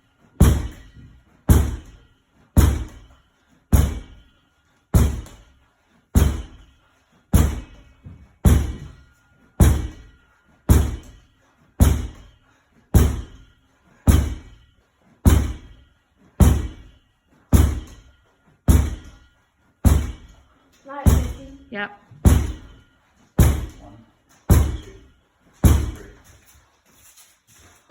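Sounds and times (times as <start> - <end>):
ball thudding against wall: 15.2 - 15.8, 18.7 - 19.2, 22.2 - 22.8.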